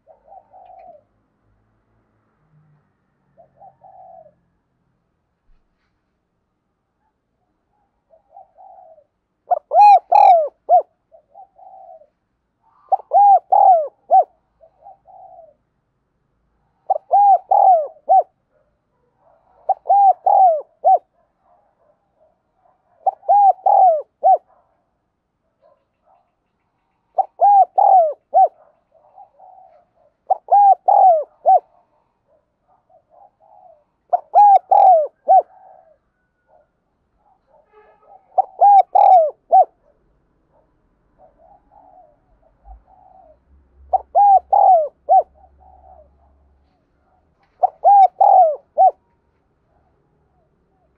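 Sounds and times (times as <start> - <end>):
dove cooing: 0.0 - 1.2, 3.4 - 4.5, 7.7 - 15.7, 16.6 - 18.4, 19.2 - 24.7, 27.1 - 39.9, 41.2 - 49.1.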